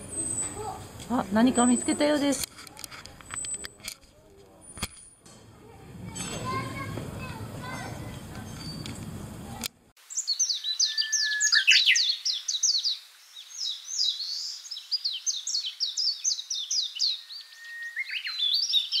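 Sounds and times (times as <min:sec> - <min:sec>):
bird chirping: 0:00.0 - 0:02.3, 0:07.6 - 0:09.2, 0:10.0 - 0:19.0
long held bird whistle: 0:10.1 - 0:19.0.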